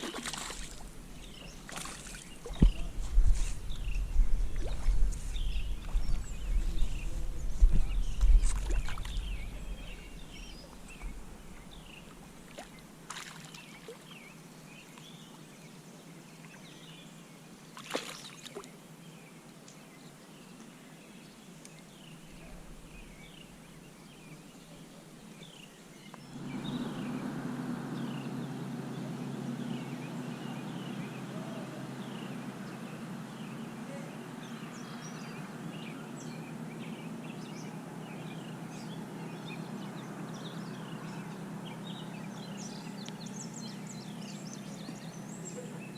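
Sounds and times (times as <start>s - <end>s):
small birds chirping: 0.0s - 45.9s
steady low hum: 0.0s - 45.9s
low rumble: 0.3s - 12.4s, 26.2s - 33.7s.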